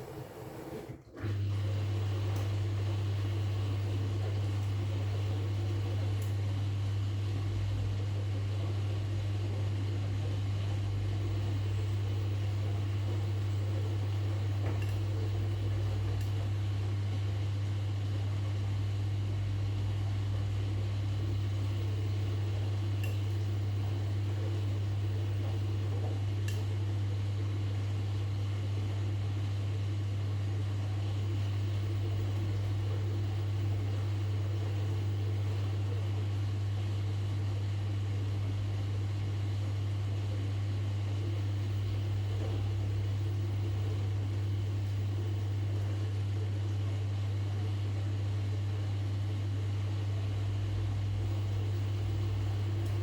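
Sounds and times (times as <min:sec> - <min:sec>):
washing machine running: 0:00.0 - 0:53.0.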